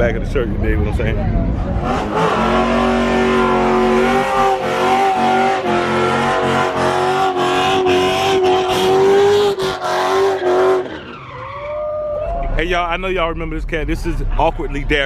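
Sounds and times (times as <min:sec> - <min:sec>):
car engine revving high: 0:00.7 - 0:11.2.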